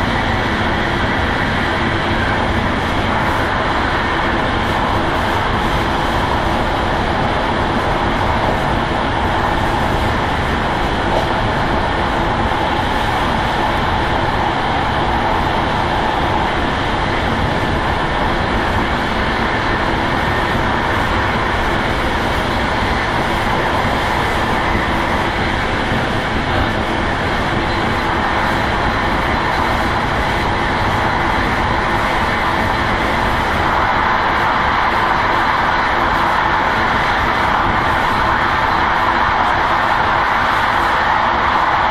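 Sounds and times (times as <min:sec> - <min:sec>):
train wheels rolling on rails: 0:00.0 - 0:41.9.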